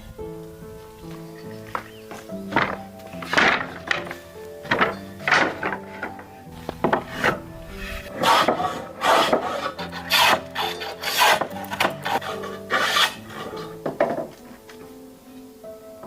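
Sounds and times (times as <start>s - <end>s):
background music: 0.0s - 16.0s
hand tool rasping wood: 1.7s - 14.4s.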